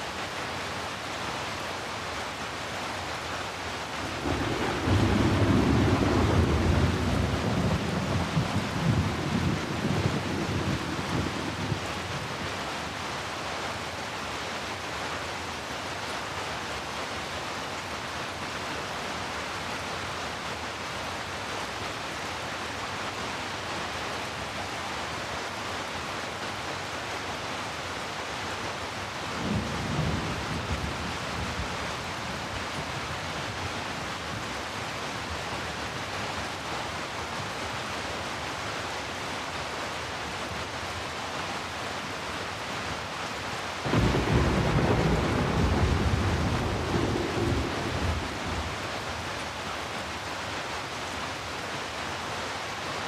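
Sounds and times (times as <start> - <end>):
steady rain: 0.0 - 53.0
low thunder rumble: 4.2 - 11.8, 43.8 - 48.8.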